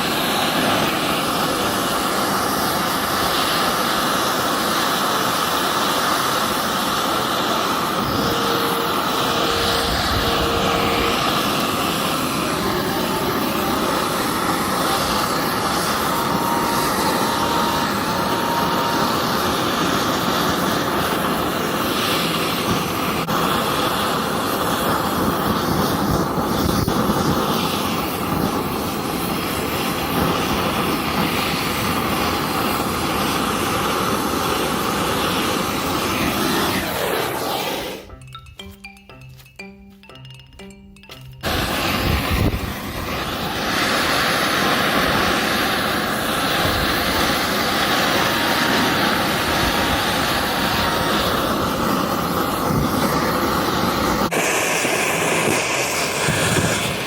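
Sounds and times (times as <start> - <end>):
short beeps: 7.8 - 15.2.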